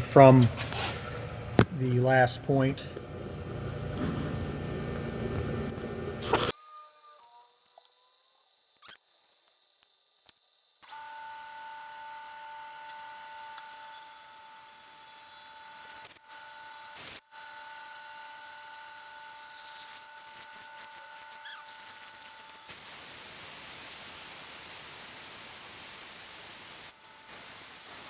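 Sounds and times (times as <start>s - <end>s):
even hiss: 0.0s - 6.5s
milling machine whine: 0.0s - 6.5s.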